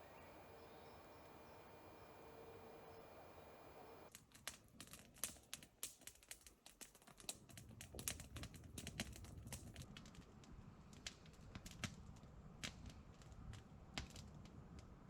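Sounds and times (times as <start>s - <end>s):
faint steady hum: 0.0s - 4.1s
campfire crackling: 0.0s - 14.9s.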